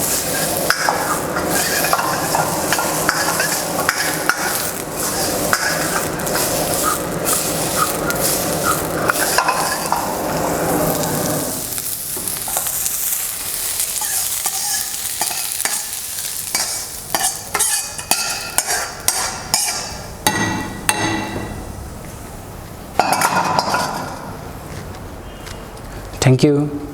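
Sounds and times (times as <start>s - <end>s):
food sizzling in a pan: 0.0s - 22.2s
utensil knocking and scraping pan: 0.1s - 6.5s.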